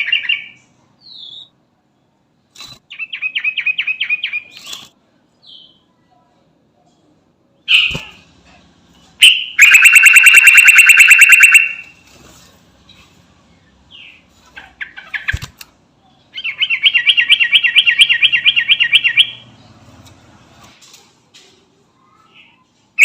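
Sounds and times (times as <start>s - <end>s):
bird singing trills and chirps: 2.9s - 6.0s, 16.0s - 19.9s.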